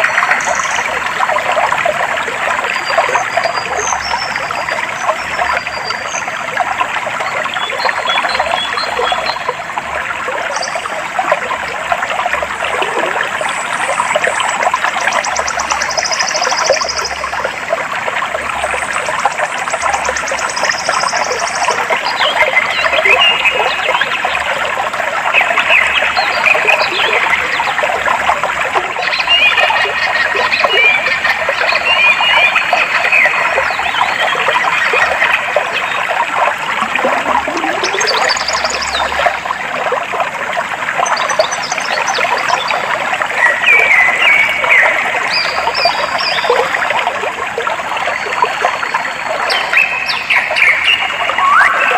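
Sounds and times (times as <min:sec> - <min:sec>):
stream water trickling: 0:00.0 - 0:51.9
birds chirping: 0:49.5 - 0:51.9.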